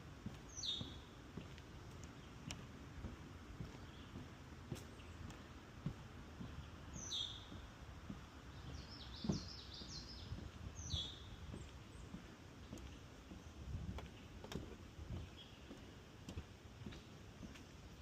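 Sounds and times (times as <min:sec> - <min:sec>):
footsteps on wooden boardwalk: 0:00.0 - 0:18.0
wild birds calling: 0:06.4 - 0:07.7, 0:08.4 - 0:14.4.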